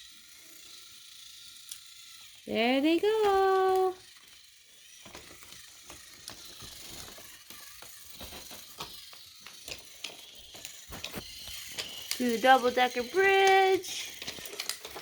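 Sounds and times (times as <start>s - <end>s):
toy train motors whirring: 0.0s - 15.0s
wheels clacking over track joints: 5.1s - 15.0s.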